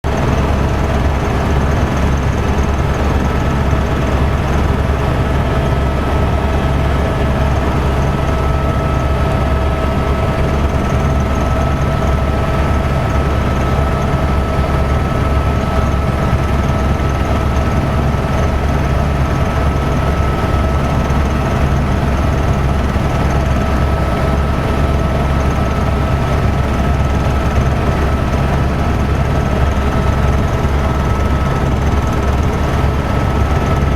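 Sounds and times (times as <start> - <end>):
helicopter rotor and engine drone: 0.0 - 33.9.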